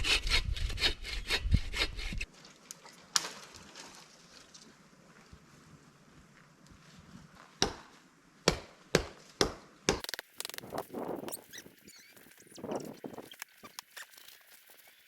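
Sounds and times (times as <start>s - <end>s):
axe chopping tree trunk: 7.6s - 7.9s, 8.5s - 10.6s.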